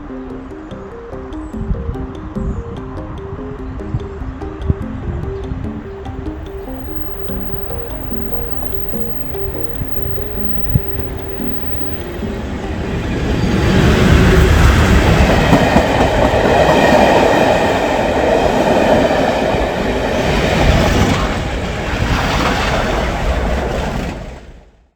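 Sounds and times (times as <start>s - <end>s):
train passing: 6.5s - 24.7s.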